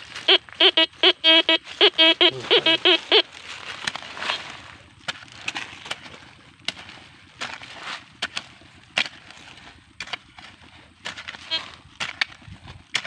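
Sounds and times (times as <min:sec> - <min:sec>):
metal detector beeps: 0:00.0 - 0:03.2.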